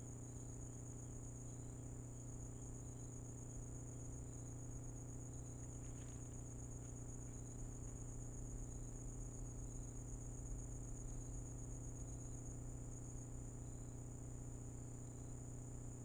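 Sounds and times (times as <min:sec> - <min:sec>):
crickets trilling: 0:00.0 - 0:16.0
low-pitched insect chirps: 0:00.0 - 0:16.0
steady low hum: 0:00.0 - 0:16.0.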